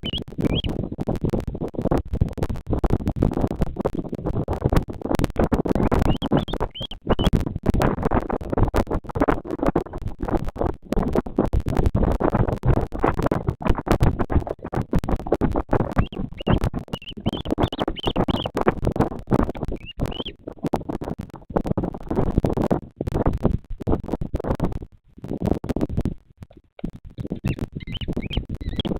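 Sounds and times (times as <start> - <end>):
short high chirps: 0.0 - 0.7, 16.0 - 18.5, 19.8 - 20.3, 27.4 - 28.9
rustling and crackling at microphone: 0.0 - 28.9.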